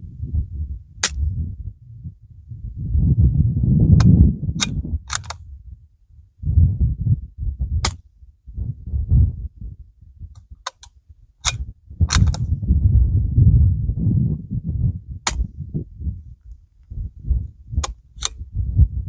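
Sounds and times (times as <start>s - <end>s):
wind buffeting microphone: 0.0s - 19.0s
suppressed gunshots: 1.0s - 1.3s, 4.0s - 5.4s, 10.6s - 12.5s.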